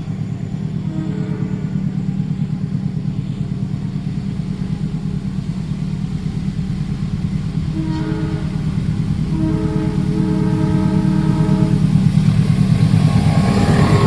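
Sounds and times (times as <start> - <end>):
train rumbling past: 0.0 - 14.0
train horn: 0.7 - 2.8, 7.6 - 12.2.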